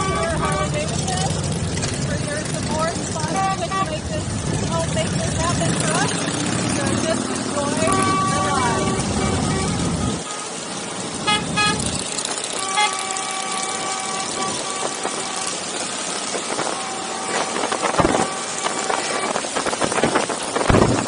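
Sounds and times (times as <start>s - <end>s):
vehicle horns honking: 0.0s - 1.3s, 3.1s - 6.0s, 7.6s - 20.1s
traffic noise rumbling: 0.0s - 21.0s
wind rushing: 14.2s - 21.0s.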